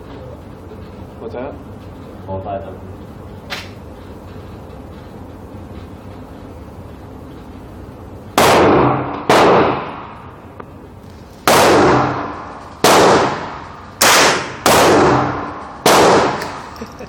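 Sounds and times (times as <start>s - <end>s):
gunshots with ringing echo: 8.4s - 10.3s, 11.5s - 16.7s.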